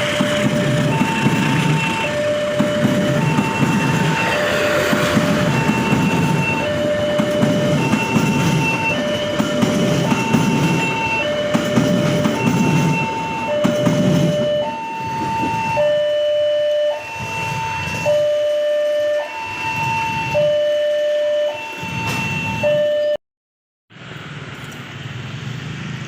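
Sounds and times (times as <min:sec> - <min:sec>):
train rumbling: 0:00.0 - 0:22.9
two-tone railway warning alarm: 0:00.0 - 0:23.2.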